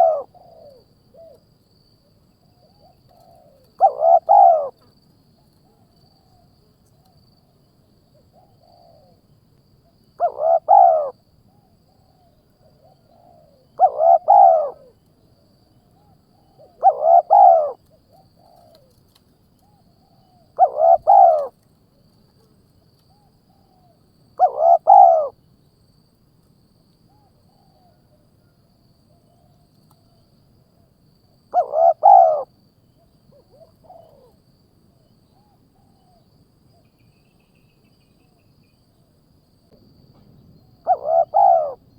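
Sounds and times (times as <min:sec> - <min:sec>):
bird calling: 0:00.0 - 0:01.4, 0:02.6 - 0:04.8, 0:10.2 - 0:11.1, 0:12.2 - 0:15.0, 0:16.0 - 0:19.0, 0:19.6 - 0:21.5, 0:23.1 - 0:25.4, 0:31.6 - 0:32.5, 0:40.8 - 0:41.9.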